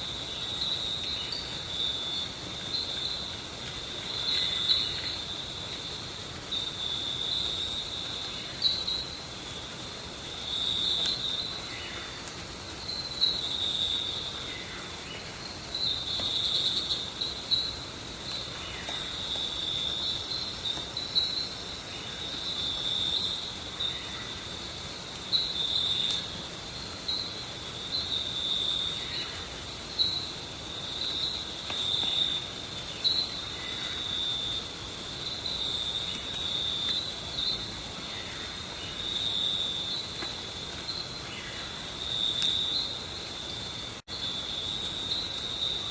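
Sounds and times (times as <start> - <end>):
insects chirring: 0.0 - 45.9.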